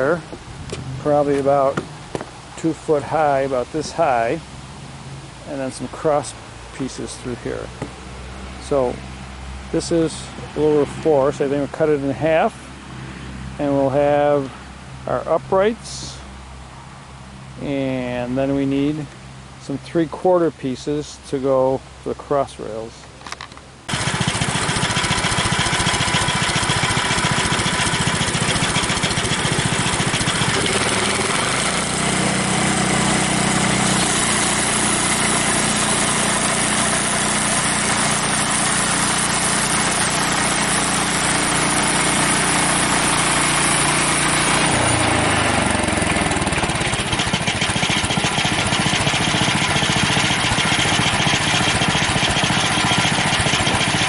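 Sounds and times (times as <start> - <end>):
sawmill engine and blade running: 23.9 - 54.0.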